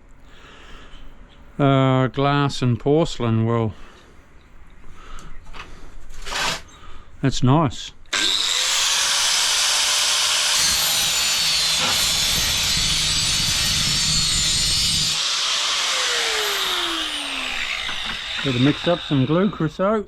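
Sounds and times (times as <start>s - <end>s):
angle grinder cutting tile: 8.1s - 19.8s.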